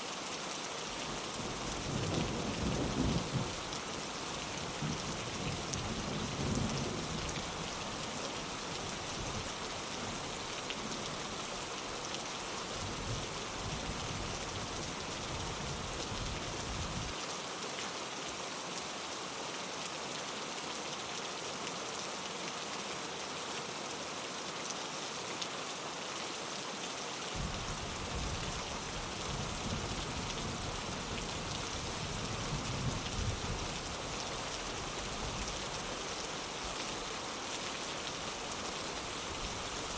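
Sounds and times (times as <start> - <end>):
rain pattering on a window: 0.2 - 18.1, 25.3 - 39.9
distant thunder rumbling: 1.6 - 3.6.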